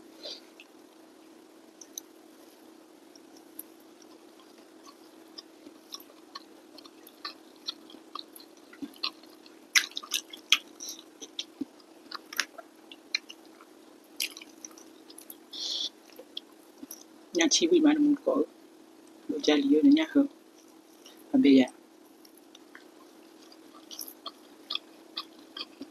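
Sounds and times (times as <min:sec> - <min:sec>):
faint steady hum: 0:00.0 - 0:25.9
chewing with wet mouth clicks: 0:01.8 - 0:02.1, 0:03.1 - 0:17.2, 0:22.2 - 0:25.9.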